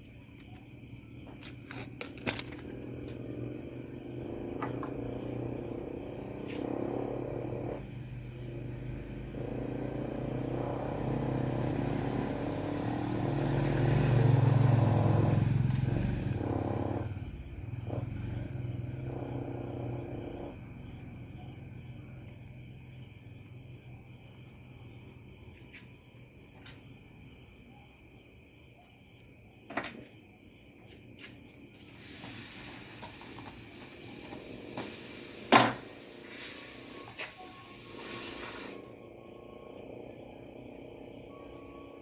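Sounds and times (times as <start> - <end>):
compressed air hissing: 31.8 - 39.0.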